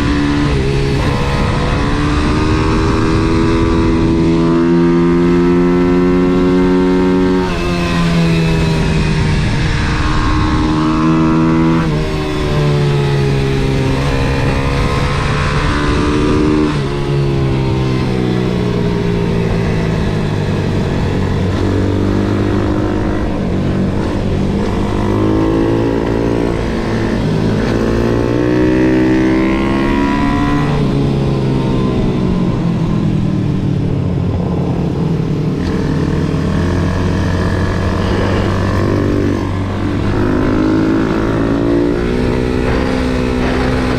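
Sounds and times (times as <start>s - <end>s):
motorbike engine revving: 0.0s - 33.2s, 35.5s - 43.9s.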